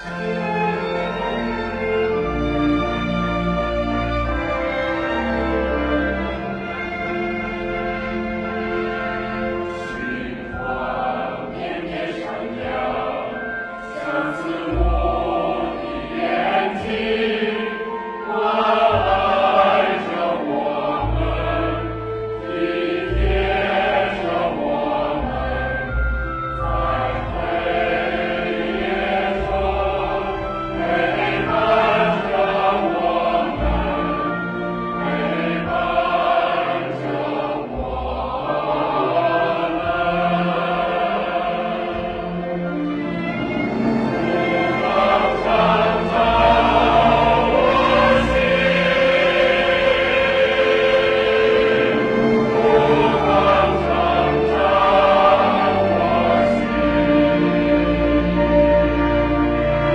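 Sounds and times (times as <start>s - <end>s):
choir singing: 0.0s - 59.9s
musical accompaniment: 0.0s - 59.9s.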